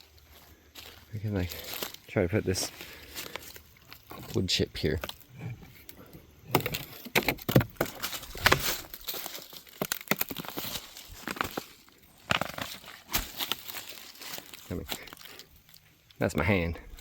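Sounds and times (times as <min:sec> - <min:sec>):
leaves and twigs crackling: 0:00.0 - 0:17.0
twigs snapping: 0:02.7 - 0:17.0.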